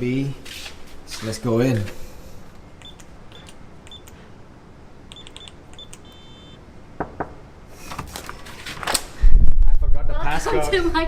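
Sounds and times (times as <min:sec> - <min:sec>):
keypad button beeps: 0:02.8 - 0:04.2, 0:05.1 - 0:06.6
door lock multi-tone beep: 0:05.1 - 0:06.6.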